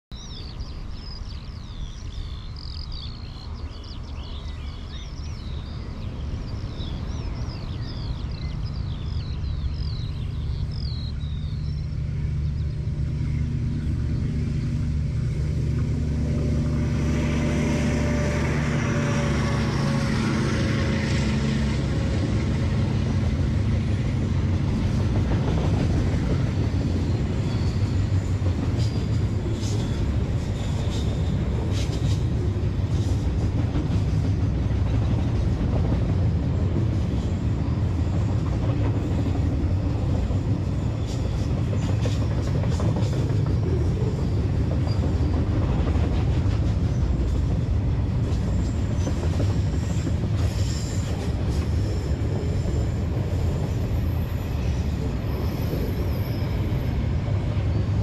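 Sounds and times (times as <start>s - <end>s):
birds chirping: 0.1s - 33.2s
diesel locomotive engine drone: 0.1s - 58.0s
train wagons rumbling on rails: 0.2s - 58.0s.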